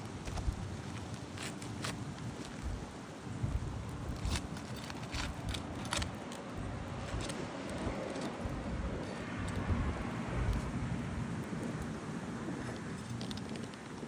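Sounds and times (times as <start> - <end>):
tool scraping roof shingles: 0.0 - 9.4
wind gusting on microphone: 0.0 - 14.0.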